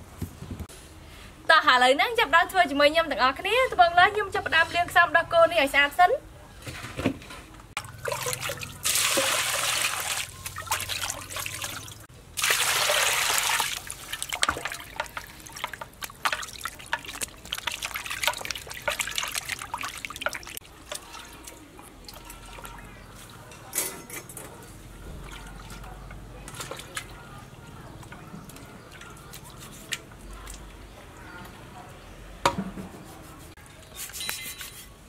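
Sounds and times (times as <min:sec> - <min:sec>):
water pouring from dipper: 0:08.0 - 0:22.8.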